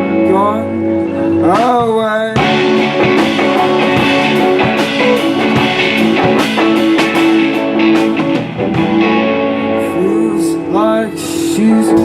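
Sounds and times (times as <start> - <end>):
person singing: 0.0 - 5.7, 9.7 - 12.0
electric guitar: 0.0 - 12.0
drum beat: 2.4 - 9.0.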